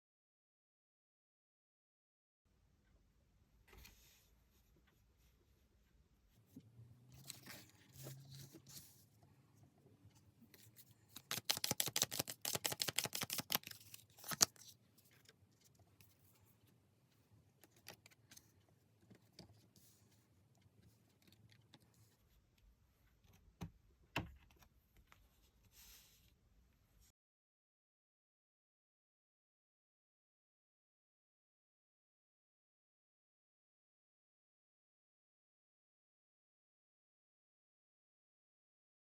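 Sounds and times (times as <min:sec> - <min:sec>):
cards riffle shuffled: 0:10.6 - 0:14.8
card snap: 0:11.2 - 0:14.5.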